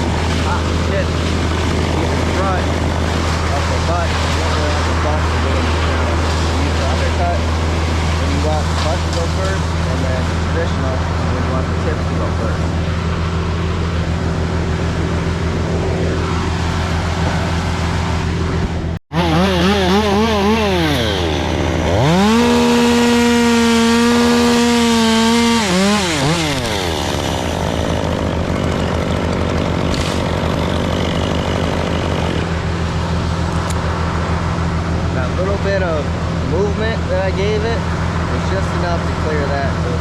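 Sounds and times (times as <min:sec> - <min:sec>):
chainsaw revving: 0:00.0 - 0:12.8, 0:19.1 - 0:33.7
low engine drone: 0:00.0 - 0:40.0.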